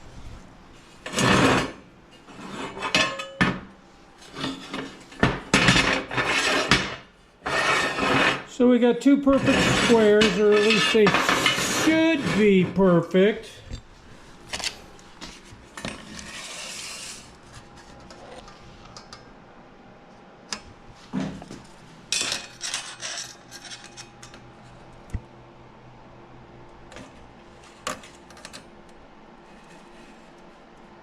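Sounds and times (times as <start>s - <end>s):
metal scrape: 1.0s - 3.1s, 4.2s - 8.5s, 9.3s - 12.9s, 15.3s - 18.6s.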